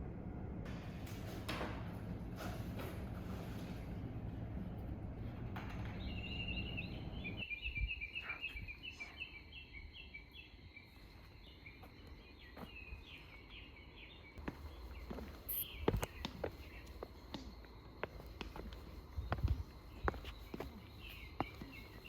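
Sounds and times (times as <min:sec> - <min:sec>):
low rumbling background: 0:00.0 - 0:07.9
bird singing high chirps: 0:06.0 - 0:17.1, 0:19.2 - 0:22.0.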